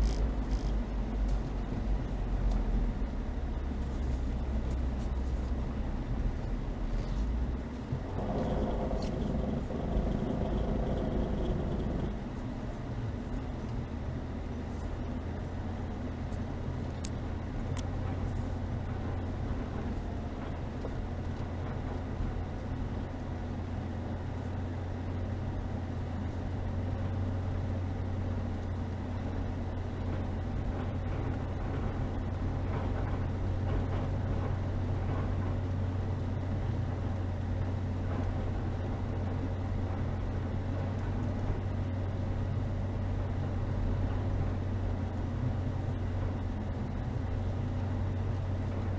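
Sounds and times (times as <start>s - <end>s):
car engine droning: 0.0s - 48.9s.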